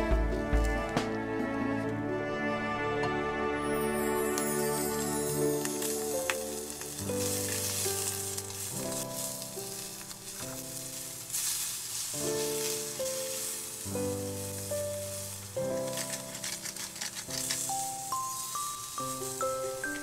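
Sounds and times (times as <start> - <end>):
background music with sustained notes: 0.0 - 20.0
food sizzling in a frying pan: 4.4 - 20.0.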